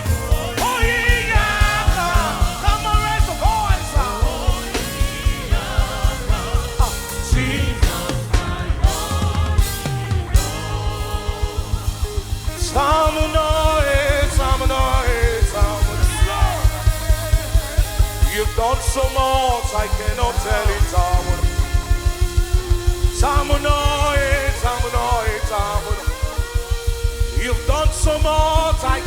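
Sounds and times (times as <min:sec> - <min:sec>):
driving drum beat: 0:00.0 - 0:29.0
gospel band playing: 0:00.0 - 0:29.0
person singing long notes: 0:00.0 - 0:29.0.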